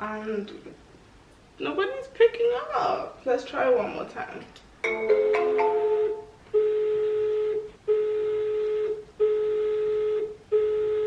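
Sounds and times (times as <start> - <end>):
chime: 4.8 - 6.4
phone ringback tone: 4.9 - 11.0.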